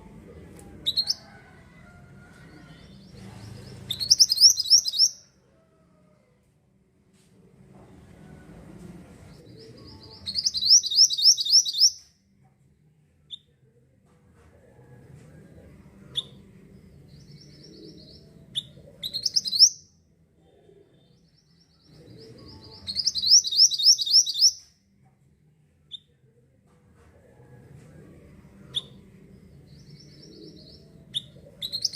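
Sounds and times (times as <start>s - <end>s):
faint low rumble: 0.0s - 10.7s
bird trilling and chirping: 0.9s - 1.2s, 3.8s - 5.2s, 10.1s - 12.0s, 18.6s - 19.9s, 22.6s - 24.6s, 31.2s - 31.9s.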